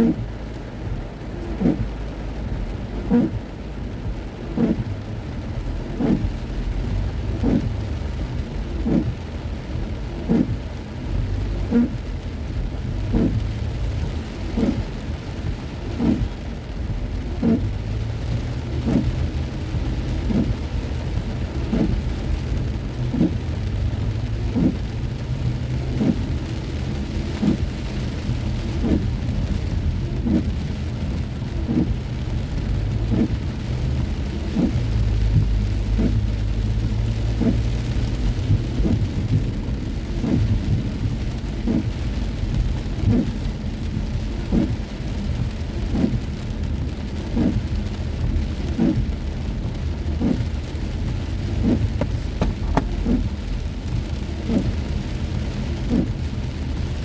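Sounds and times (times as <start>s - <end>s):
engine and road rumble: 0.0s - 57.0s
heavy rain on a car: 0.0s - 57.0s
soft thump: 52.0s - 52.9s.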